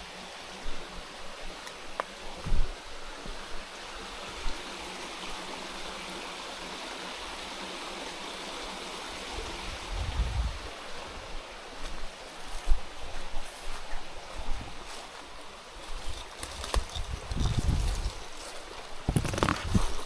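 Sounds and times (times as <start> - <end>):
running water rushing: 0.0 - 20.0
low rumble: 9.6 - 10.8.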